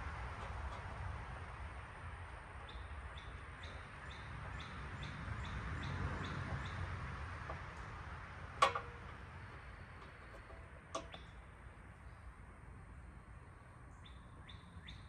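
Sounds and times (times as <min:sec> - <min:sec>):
bird chirping: 0:13.9 - 0:15.0.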